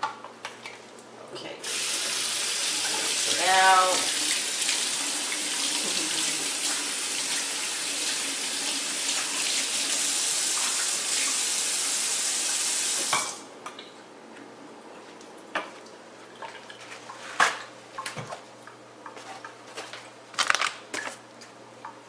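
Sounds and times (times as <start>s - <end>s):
kitchen tap running: 1.6s - 13.4s.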